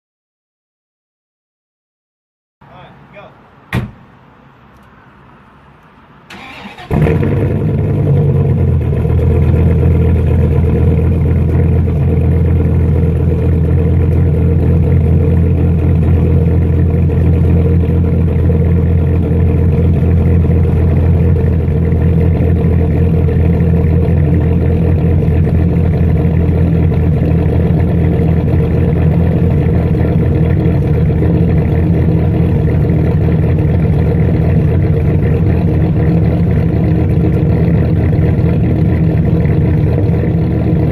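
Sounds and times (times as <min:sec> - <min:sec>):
car engine cranking: 0:06.3 - 0:40.9
car engine idling loudly: 0:06.9 - 0:40.9.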